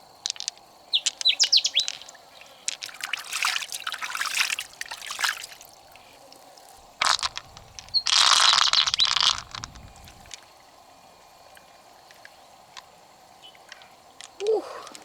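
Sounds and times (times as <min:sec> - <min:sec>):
water splashing and pouring: 0:01.8 - 0:10.7.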